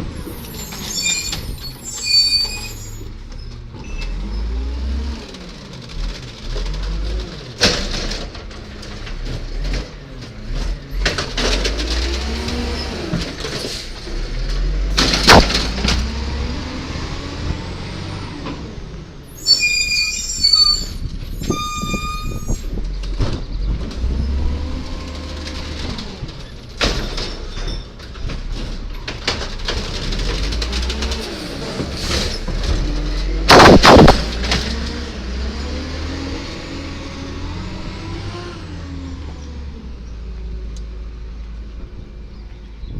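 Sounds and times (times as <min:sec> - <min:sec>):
short high-pitched squeals: 0:00.4 - 0:03.1, 0:19.3 - 0:22.7
truck engine revving: 0:04.1 - 0:19.3, 0:23.1 - 0:26.4, 0:29.6 - 0:40.9
sharp loud bang: 0:15.0 - 0:16.0, 0:33.5 - 0:34.4.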